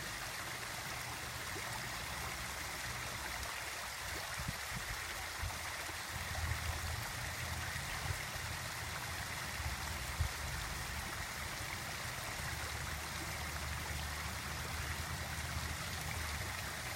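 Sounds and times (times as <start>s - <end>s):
water fountain splashing: 0.0s - 16.9s.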